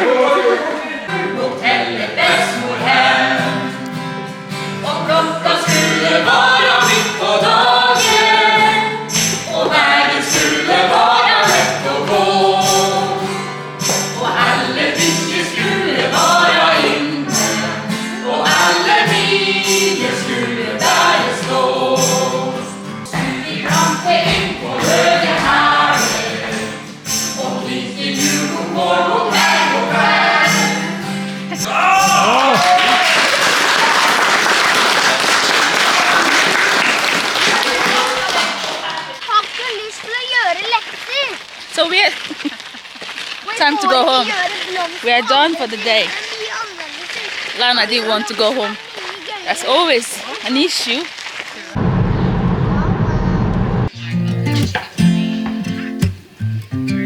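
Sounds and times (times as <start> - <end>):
choir singing: 0.0 - 32.8
jingling percussion beat: 5.7 - 32.8.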